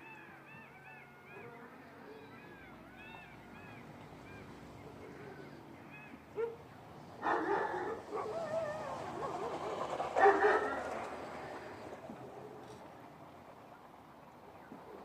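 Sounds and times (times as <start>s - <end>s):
dog barking loudly: 7.2s - 9.6s, 10.2s - 11.0s
dog yelping: 7.2s - 9.6s, 10.2s - 10.8s.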